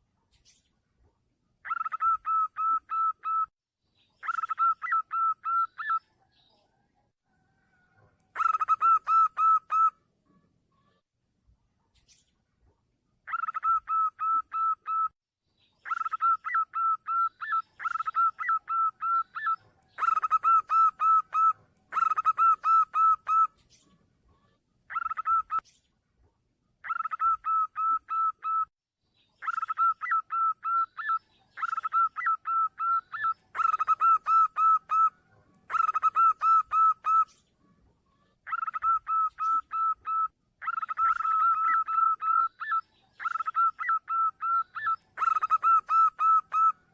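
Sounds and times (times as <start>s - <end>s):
dove cooing: 1.7s - 3.5s, 8.4s - 9.9s, 13.3s - 15.1s, 15.9s - 23.5s, 29.4s - 37.4s, 38.4s - 46.9s.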